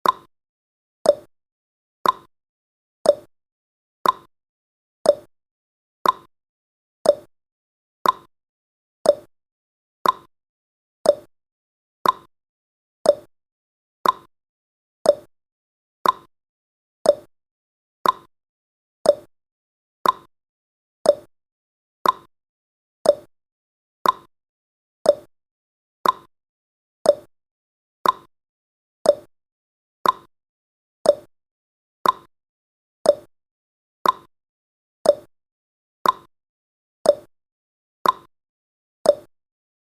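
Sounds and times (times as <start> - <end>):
clock ticking: 2.0 - 2.3, 4.0 - 4.3, 6.0 - 6.3, 8.0 - 8.3, 10.0 - 10.3, 12.0 - 12.3, 14.0 - 14.3, 16.0 - 16.3, 18.0 - 18.3, 20.0 - 20.3, 21.1 - 21.3, 22.0 - 22.3, 24.0 - 24.3, 26.0 - 26.3, 28.0 - 28.3, 29.1 - 29.3, 30.0 - 30.3, 31.1 - 31.3, 32.0 - 32.3, 33.1 - 33.3, 34.0 - 34.3, 35.1 - 35.3, 36.0 - 36.3, 38.0 - 38.3.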